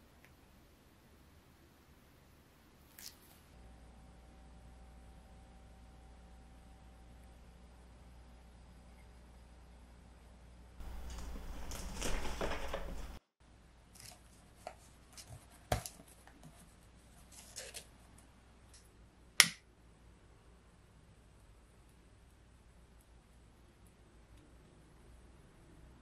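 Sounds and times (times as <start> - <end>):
rustling handling noise: 10.8 - 13.2.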